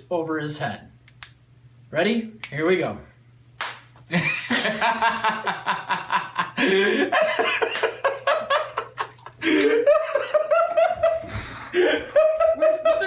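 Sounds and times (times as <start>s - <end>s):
hearty laughter: 4.1s - 13.0s.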